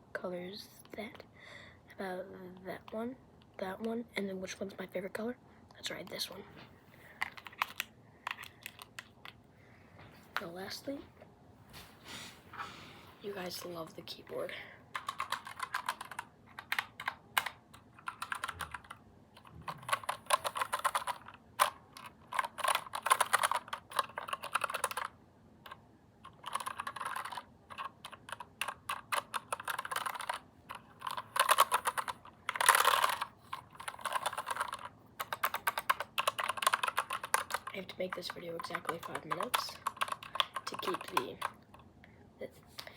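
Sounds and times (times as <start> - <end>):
keyboard typing: 7.2 - 9.4, 14.9 - 41.8.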